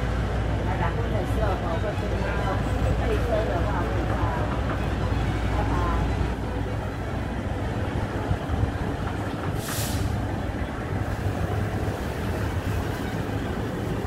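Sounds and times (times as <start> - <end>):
train rumbling: 0.0 - 14.0
air hiss: 9.6 - 10.2.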